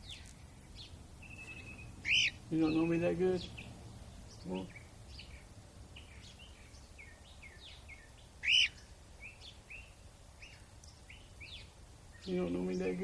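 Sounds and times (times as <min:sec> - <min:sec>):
cockatiel call rising and falling: 0:01.2 - 0:02.4, 0:08.4 - 0:08.8
short bird chirps: 0:01.2 - 0:02.4, 0:07.5 - 0:12.3.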